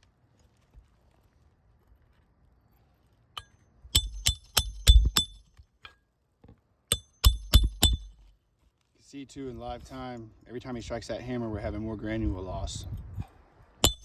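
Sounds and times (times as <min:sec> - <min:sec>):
hammer striking metal: 0:03.4 - 0:05.5, 0:06.9 - 0:08.2.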